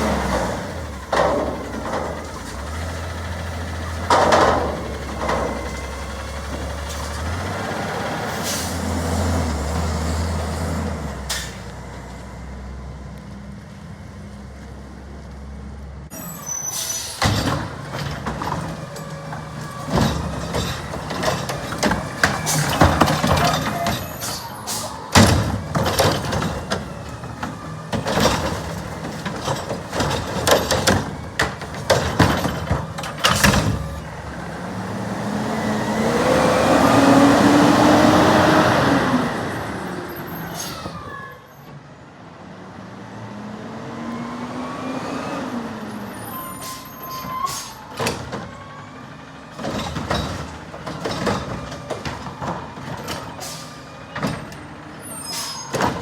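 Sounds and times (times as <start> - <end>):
garbage truck clanking: 0.0 - 12.5, 16.1 - 41.5, 45.6 - 56.0
engine revving with whine: 34.6 - 39.8.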